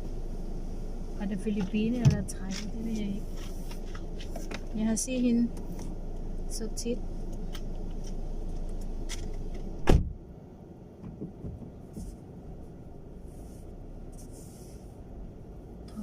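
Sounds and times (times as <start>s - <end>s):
car door slamming: 9.8s - 10.2s.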